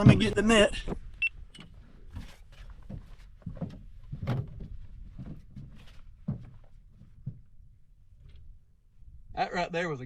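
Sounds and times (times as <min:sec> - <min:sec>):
gear knocks and thumps: 0:01.6 - 0:07.6.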